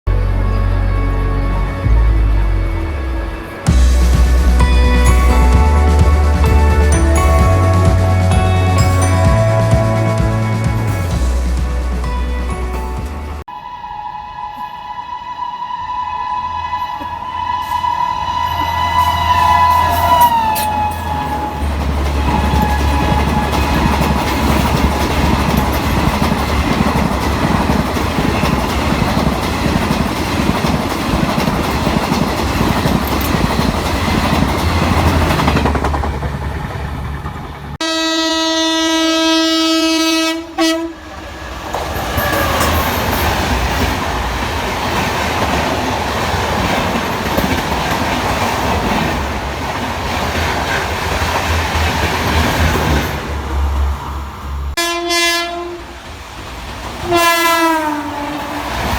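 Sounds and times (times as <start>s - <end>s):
train wheels rumbling on rails: 2.2s - 13.5s, 16.5s - 58.9s
train horn long note: 13.5s - 25.8s, 37.8s - 41.2s, 54.8s - 56.0s, 57.0s - 58.6s.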